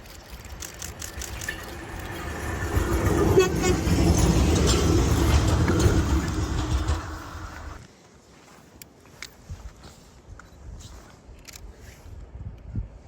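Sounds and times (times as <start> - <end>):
locomotive wheels rumbling: 0.0 - 7.8
wheel clicks over rail joints: 0.0 - 7.8
faint train horn: 1.5 - 7.0.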